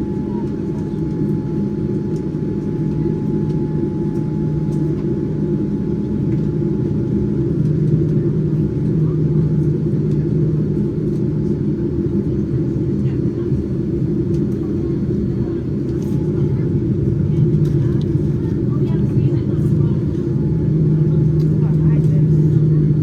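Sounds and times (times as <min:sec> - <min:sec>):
airliner engines rumbling: 0:00.0 - 0:23.0
low cabin hum: 0:00.0 - 0:23.0.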